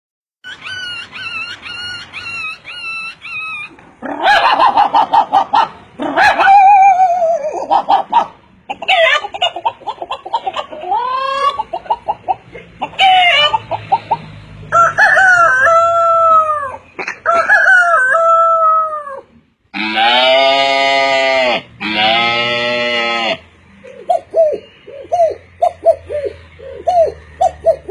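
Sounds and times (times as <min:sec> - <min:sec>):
hens clucking: 0:00.6 - 0:14.4
rooster crowing: 0:14.7 - 0:23.4
animal bleating: 0:19.8 - 0:23.4.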